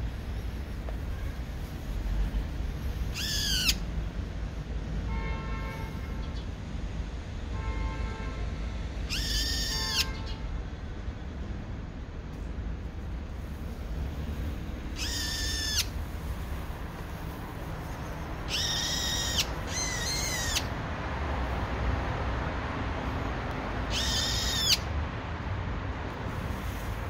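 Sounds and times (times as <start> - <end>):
bird giving high calls: 3.1 - 3.8, 9.1 - 10.4, 14.9 - 16.0, 18.0 - 20.8, 23.8 - 24.9.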